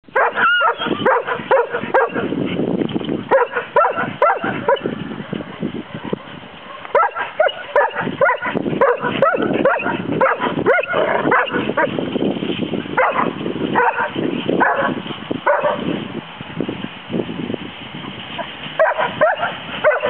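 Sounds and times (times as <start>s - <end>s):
dogs barking and yipping: 0.1s - 16.1s, 17.9s - 20.0s.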